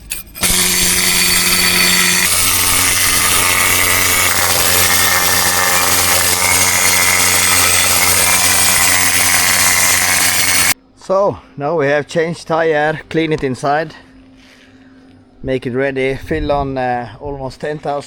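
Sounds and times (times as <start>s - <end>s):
power tool scrubbing rust: 0.0s - 10.8s.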